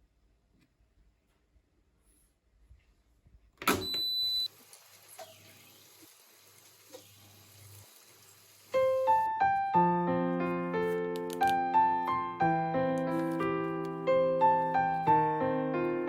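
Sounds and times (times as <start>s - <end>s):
faint room noise: 0.0s - 3.6s
piano music: 8.8s - 16.0s.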